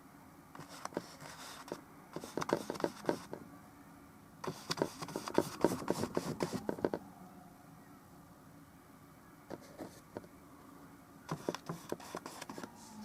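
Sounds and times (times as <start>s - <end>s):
paintbrush dabbing and scrubbing: 0.6s - 3.3s, 4.4s - 7.0s, 11.3s - 13.0s.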